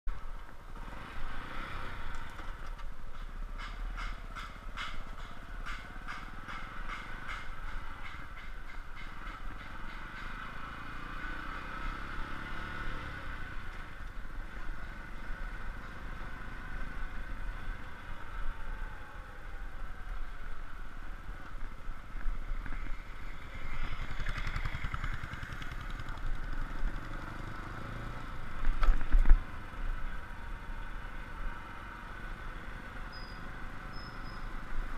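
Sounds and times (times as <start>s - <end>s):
motorcycle engine running: 23.4s - 30.2s.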